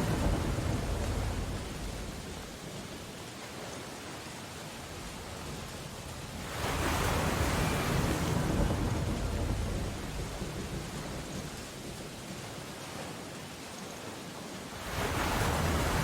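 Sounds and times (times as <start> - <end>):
ocean wave breaking: 0.0 - 2.8, 4.9 - 12.0, 14.7 - 16.0
rain on window glass: 0.0 - 3.2.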